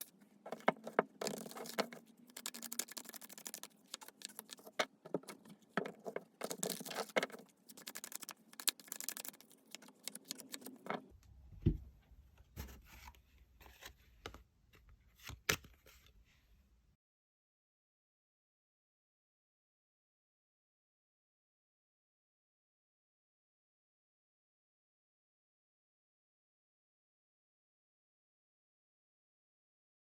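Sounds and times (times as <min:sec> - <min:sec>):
cards being shuffled: 0:00.0 - 0:11.1.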